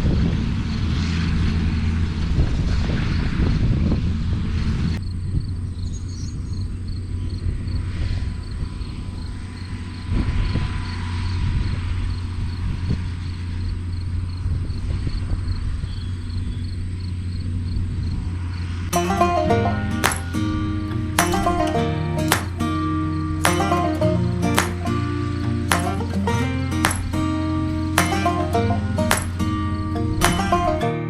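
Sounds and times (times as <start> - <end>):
tractor engine running: 18.9 - 30.9.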